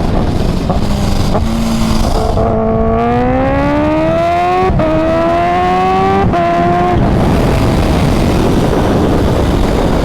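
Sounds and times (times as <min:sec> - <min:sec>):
low wind rush: 0:00.0 - 0:10.0
motorcycle engine accelerating: 0:00.0 - 0:10.0.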